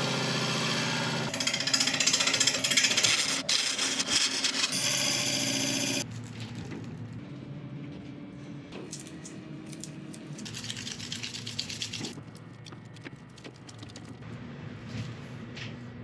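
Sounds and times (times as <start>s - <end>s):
wood lathe motor humming: 4.8s - 6.0s.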